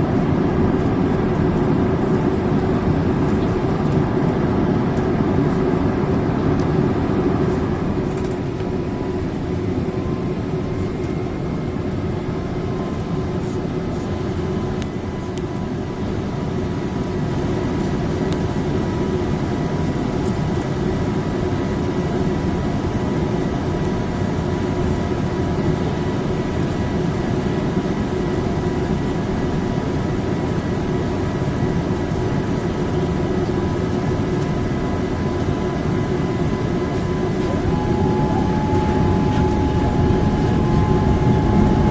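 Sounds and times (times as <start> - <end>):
airplane cabin engine rush: 0.0 - 41.9
faint thin whine: 34.4 - 41.9.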